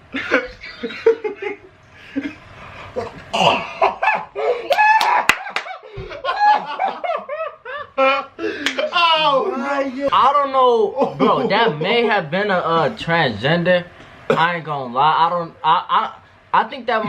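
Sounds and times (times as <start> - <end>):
young men laughing: 0.1 - 13.0.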